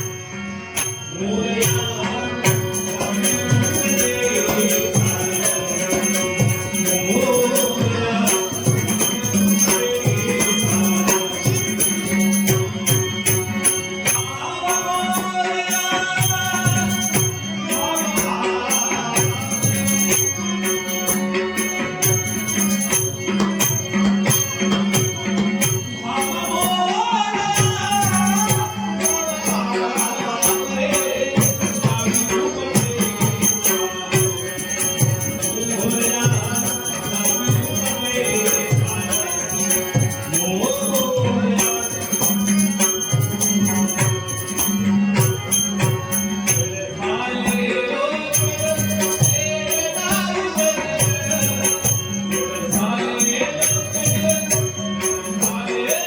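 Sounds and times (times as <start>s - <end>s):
small cymbals jingling: 0.0s - 56.0s
man singing a hymn: 1.1s - 11.3s.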